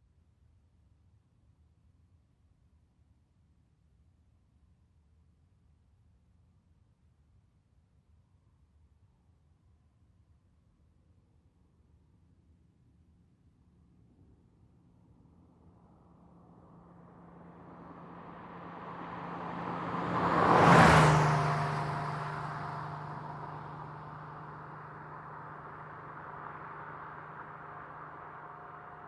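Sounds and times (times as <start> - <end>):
car passing by: 16.2 - 29.0.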